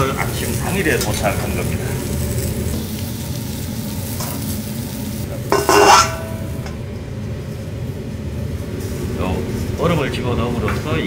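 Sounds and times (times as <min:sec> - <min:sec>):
lobster sizzling on a griddle: 0:00.0 - 0:06.8, 0:07.4 - 0:11.0
metal dome cover clanging: 0:05.5 - 0:06.7.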